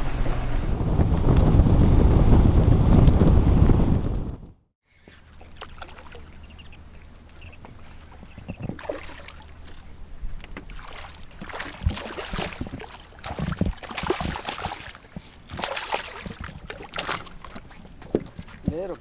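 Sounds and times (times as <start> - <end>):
water surging: 5.2 - 10.0
knocks and bumps on boat: 10.5 - 19.0.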